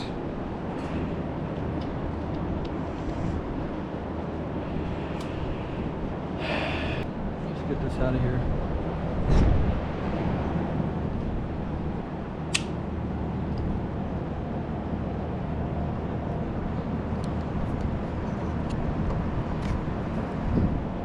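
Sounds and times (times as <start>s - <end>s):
sharp click of parts: 12.5s - 12.8s.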